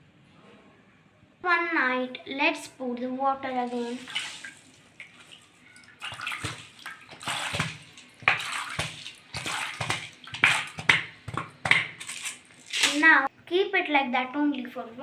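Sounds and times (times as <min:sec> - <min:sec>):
water pouring and splashing: 0:03.6 - 0:13.1.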